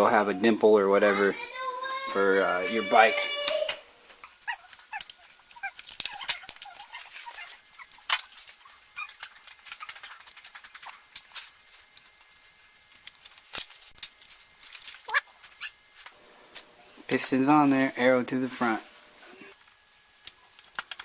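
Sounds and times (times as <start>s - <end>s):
dog whimpering: 4.3s - 8.0s, 8.7s - 9.2s
metal engine parts clicking: 4.7s - 6.9s.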